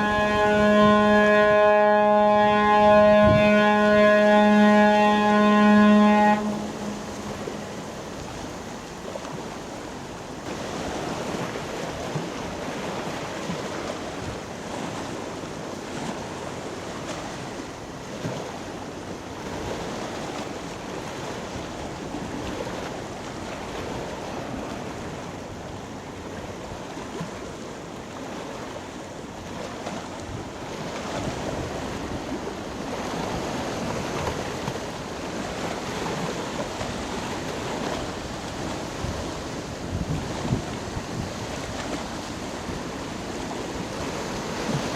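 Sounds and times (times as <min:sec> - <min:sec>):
water noise: 0:00.0 - 0:44.9
wind buffeting microphone: 0:02.5 - 0:03.7, 0:29.9 - 0:44.9.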